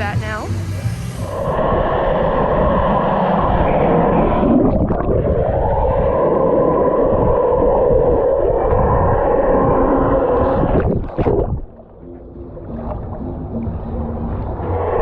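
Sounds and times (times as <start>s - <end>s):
muffled rushing water: 0.0s - 15.0s.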